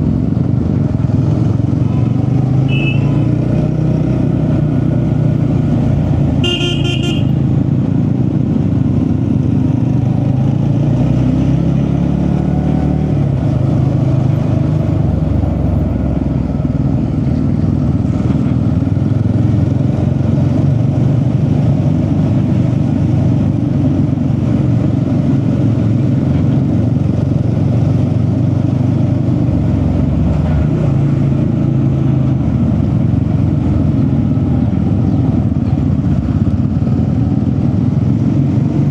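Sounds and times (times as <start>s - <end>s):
vehicle engine and road noise: 0.0s - 38.9s
short horn beep: 2.7s - 3.2s, 6.4s - 7.3s.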